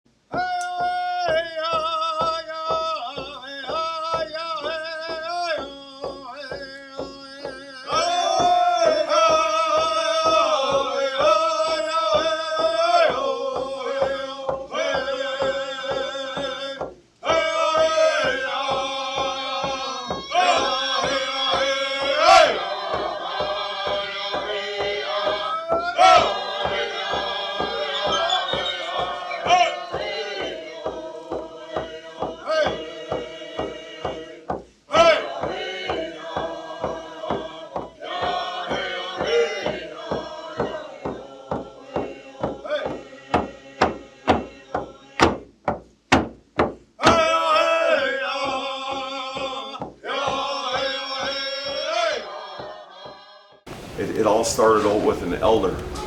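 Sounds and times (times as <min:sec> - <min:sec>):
men singing a chant-like song: 0:00.3 - 0:45.4, 0:47.0 - 0:56.0
steady beat: 0:20.4 - 0:34.2, 0:53.7 - 0:56.0.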